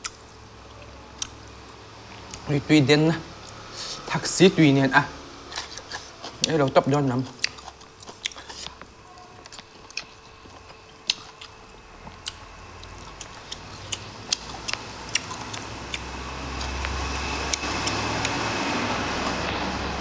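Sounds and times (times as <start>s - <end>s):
chewing mouth clicks and smacks: 5.5s - 18.4s.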